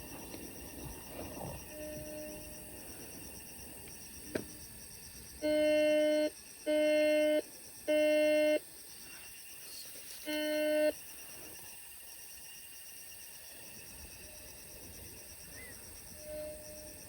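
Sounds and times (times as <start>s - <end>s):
electronic beeps: 10.3s - 10.9s.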